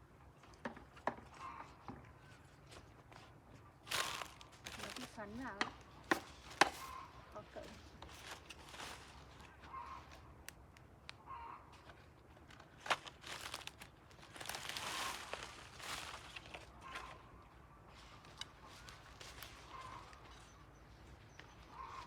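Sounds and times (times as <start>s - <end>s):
fence netting rustling: 3.8s - 10.3s, 11.9s - 17.3s, 18.0s - 20.5s
chickens clucking: 16.6s - 22.0s.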